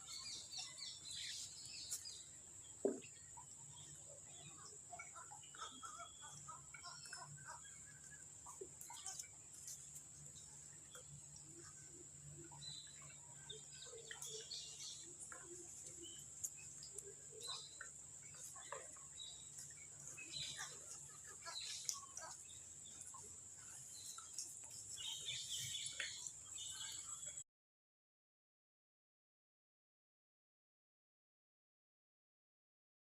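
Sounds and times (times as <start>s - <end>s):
bird chirps: 0.0s - 27.4s.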